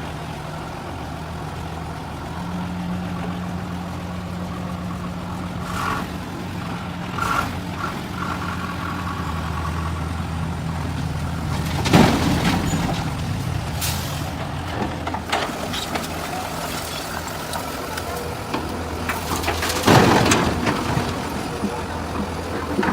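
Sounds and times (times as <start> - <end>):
truck engine humming: 0.0 - 22.9
air brake hissing: 13.8 - 14.3.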